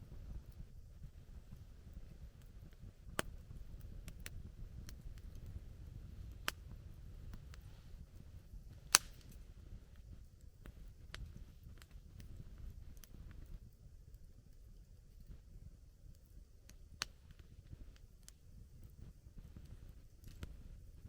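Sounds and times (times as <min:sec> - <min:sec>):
low steady rumble: 0:00.0 - 0:21.0
campfire crackling and popping: 0:00.1 - 0:21.0.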